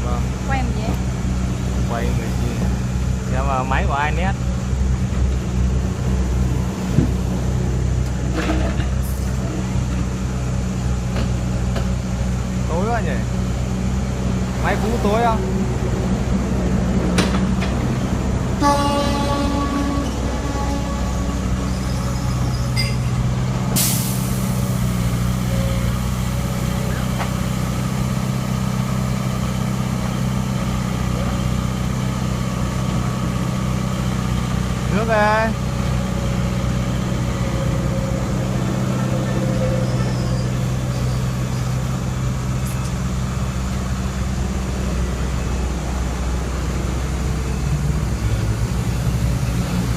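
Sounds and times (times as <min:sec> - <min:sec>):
diesel engine running at low revs: 0:00.0 - 0:49.9
air brakes hissing: 0:23.7 - 0:27.1.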